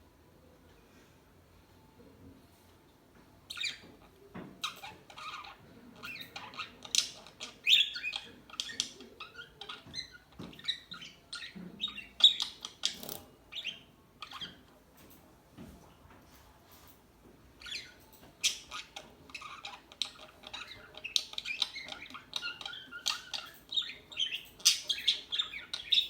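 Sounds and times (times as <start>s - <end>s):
budgerigars chirping and chattering: 3.5s - 14.7s, 17.6s - 26.0s.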